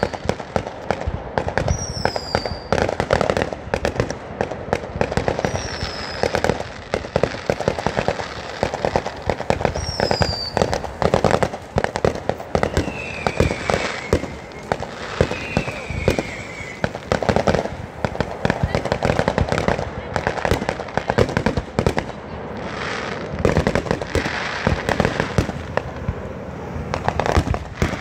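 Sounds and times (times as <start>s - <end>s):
firework falling whistle: 0.0s - 0.4s, 1.6s - 2.9s, 5.4s - 6.6s, 9.5s - 17.7s
fireworks crackling and banging: 0.0s - 28.0s.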